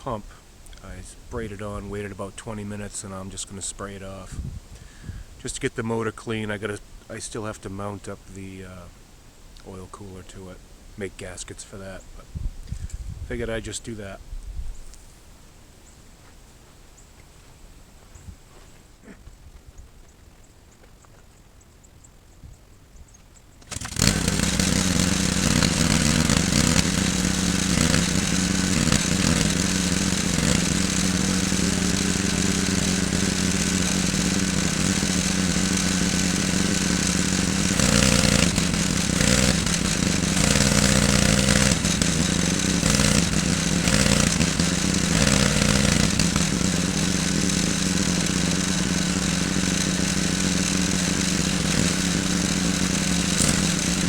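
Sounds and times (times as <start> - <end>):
pressure washer engine humming: 23.6 - 54.0.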